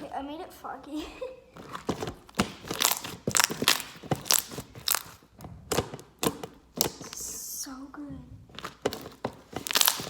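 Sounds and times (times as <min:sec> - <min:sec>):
slime crackling and popping: 0:01.6 - 0:07.4, 0:08.5 - 0:10.0.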